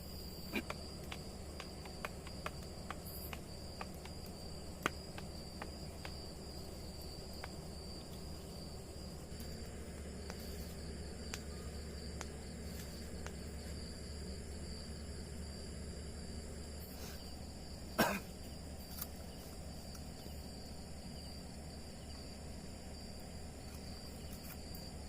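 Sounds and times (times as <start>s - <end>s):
crickets trilling: 0.0s - 25.0s
low hum and hiss: 0.0s - 25.0s
sharp ticks: 0.5s - 6.3s.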